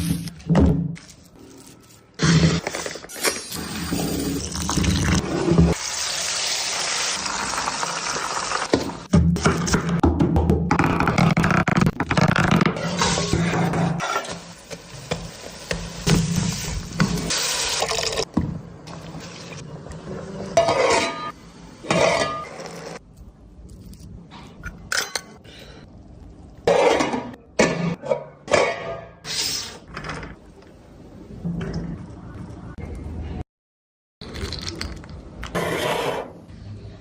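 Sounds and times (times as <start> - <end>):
dishes and utensils clinking: 20.6 - 22.7, 24.6 - 25.4.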